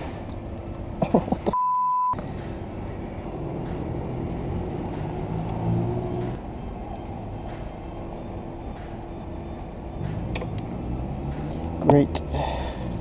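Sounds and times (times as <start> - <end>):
censor bleep: 1.6 - 2.2.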